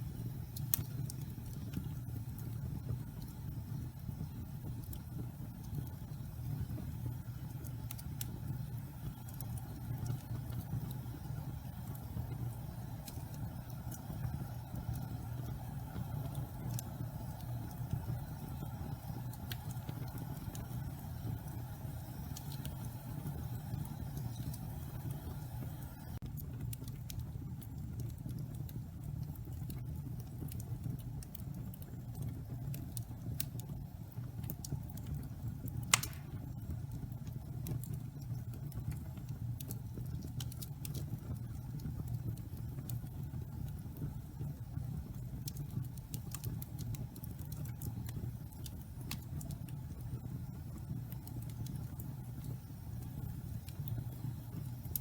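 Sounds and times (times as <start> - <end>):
fire crackling: 0.0 - 55.0
fire rumbling: 0.0 - 55.0
sharp pop of fire: 35.9 - 36.6.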